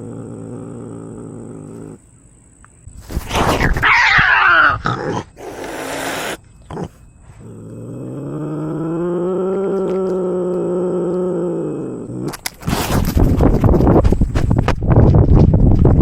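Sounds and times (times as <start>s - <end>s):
cat growling: 0.0s - 2.1s, 3.2s - 12.9s
cat hissing: 3.0s - 7.4s
cat yowling: 3.6s - 6.9s.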